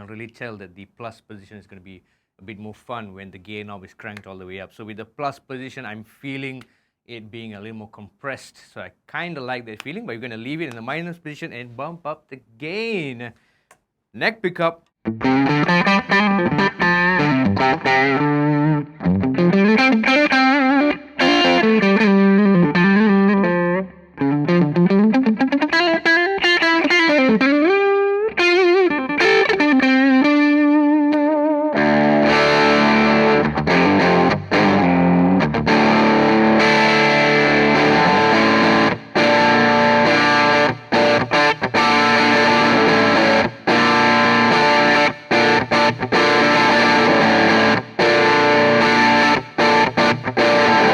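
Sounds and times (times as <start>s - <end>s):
overdriven electric guitar: 15.1s - 50.9s.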